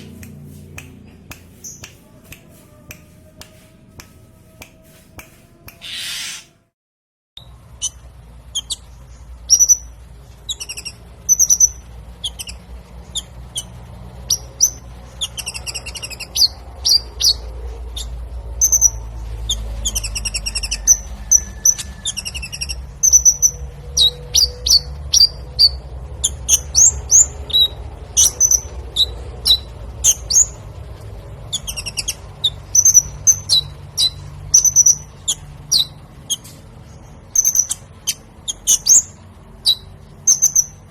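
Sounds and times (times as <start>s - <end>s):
low steady rumble: 0.0s - 5.7s, 7.4s - 40.9s
songbird chirping and trilling: 0.0s - 6.6s, 7.4s - 40.9s.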